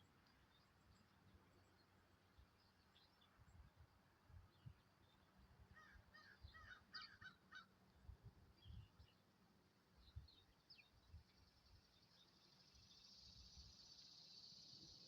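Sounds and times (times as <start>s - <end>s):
distant crow cawing: 5.8s - 7.7s
small birds chirping: 8.5s - 15.0s.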